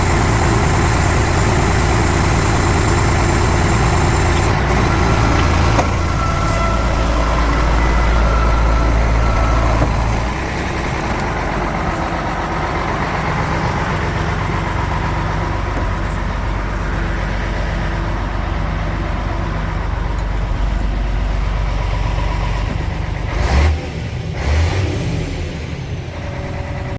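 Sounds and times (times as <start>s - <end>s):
truck diesel engine idling: 0.0s - 23.4s, 25.9s - 26.9s
short thumps: 9.3s - 11.2s.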